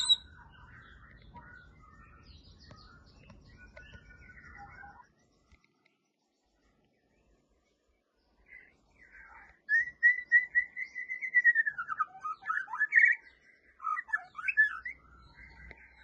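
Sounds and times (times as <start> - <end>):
bird singing fluty whistles: 0.0 - 5.1, 9.6 - 16.0.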